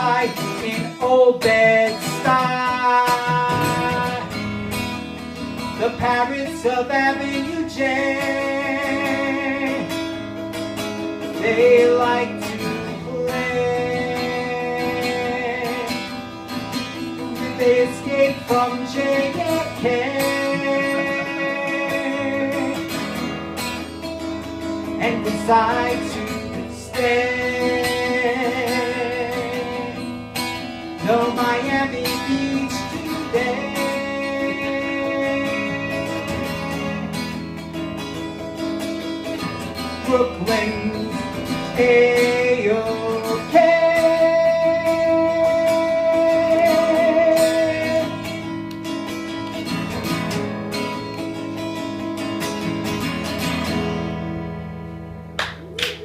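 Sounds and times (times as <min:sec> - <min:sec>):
man singing with vibrato: 0:00.0 - 0:54.5
strummed acoustic guitar: 0:00.0 - 0:56.0
people clapping: 0:55.4 - 0:56.0.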